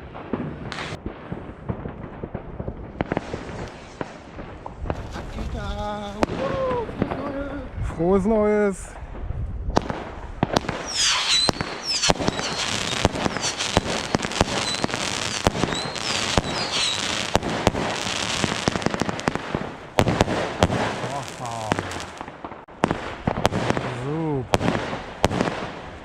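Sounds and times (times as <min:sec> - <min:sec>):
fireworks crackling: 0:00.0 - 0:07.6, 0:09.8 - 0:26.0
firecracker bangs: 0:09.8 - 0:24.0
high fireworks whistles: 0:10.6 - 0:22.3.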